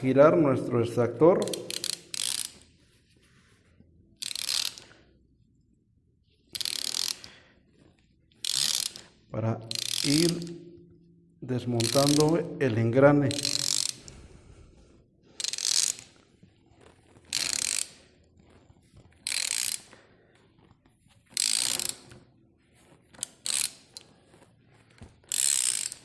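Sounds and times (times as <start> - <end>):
socket wrench ratchet clicking: 1.4 - 2.7, 4.2 - 5.0, 6.6 - 7.4, 8.4 - 10.8, 11.8 - 12.4, 13.3 - 14.1, 15.4 - 16.2, 17.3 - 18.0, 19.2 - 20.0, 21.3 - 22.2, 23.2 - 24.1, 25.3 - 26.0.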